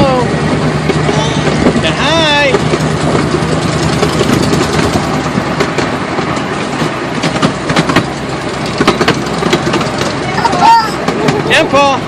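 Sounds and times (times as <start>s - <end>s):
small ride train running: 0.0s - 12.0s
clicks and rattles: 2.4s - 10.2s.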